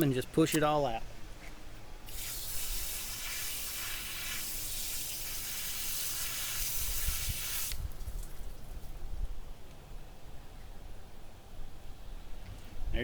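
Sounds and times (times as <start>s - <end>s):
water spray hissing: 2.1s - 8.4s.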